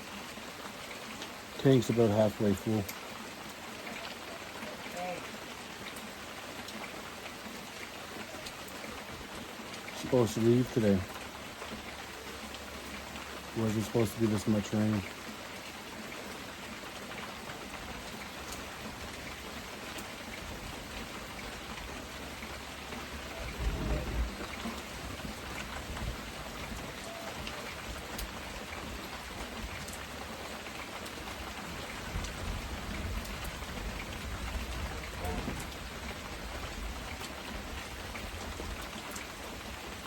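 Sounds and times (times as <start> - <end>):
heavy rain pouring: 0.0 - 40.0
low rumble: 23.3 - 24.8.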